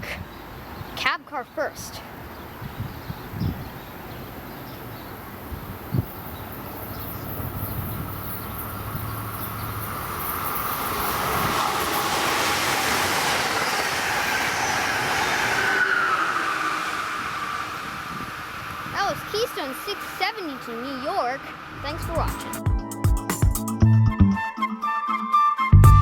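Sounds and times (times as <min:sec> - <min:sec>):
train wheels and rail noise: 0:03.7 - 0:22.5.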